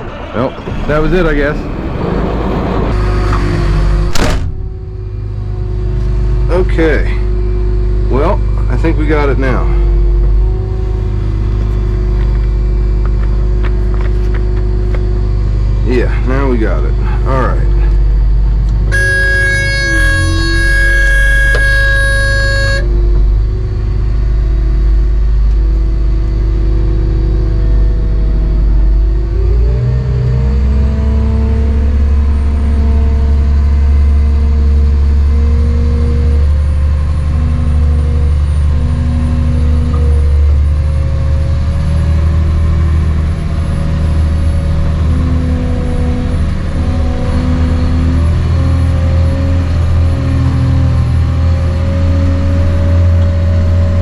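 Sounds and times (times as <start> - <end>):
diesel engine running: 0.0 - 54.0
faint high whine: 18.8 - 23.1.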